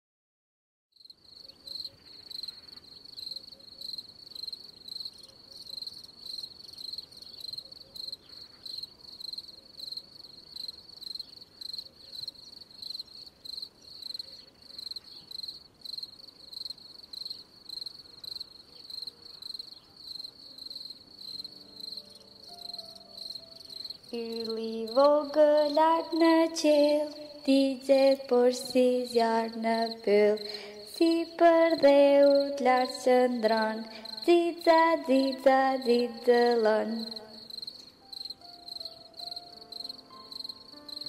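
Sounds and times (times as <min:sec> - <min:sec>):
cricket chirping: 0:01.0 - 0:41.0
faint music: 0:18.6 - 0:41.0.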